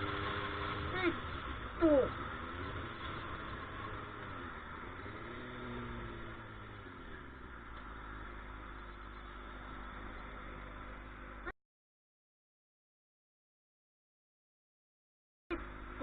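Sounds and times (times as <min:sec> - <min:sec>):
road noise: 0:00.0 - 0:11.5, 0:15.5 - 0:16.0
vehicle engine running: 0:00.0 - 0:11.5, 0:15.5 - 0:16.0.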